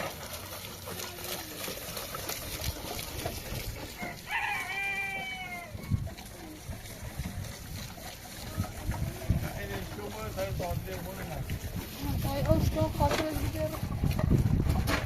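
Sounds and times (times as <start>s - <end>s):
rooster crowing: 4.0s - 5.9s.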